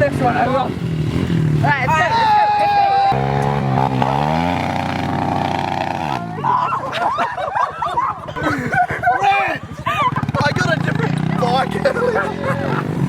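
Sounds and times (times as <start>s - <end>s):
dirt bike engine revving: 0.0s - 6.6s, 9.7s - 13.0s.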